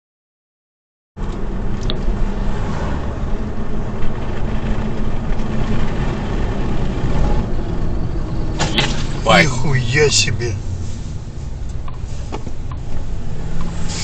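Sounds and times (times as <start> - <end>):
car engine and road rumble: 1.2 - 14.0.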